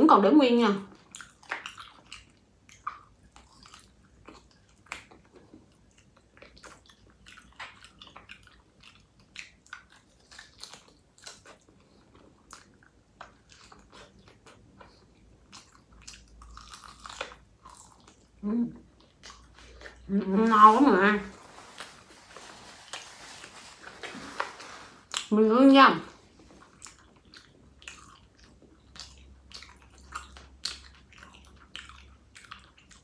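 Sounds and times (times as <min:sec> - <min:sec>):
biting and chewing mouth sounds: 0:00.9 - 0:20.1, 0:26.2 - 0:33.0.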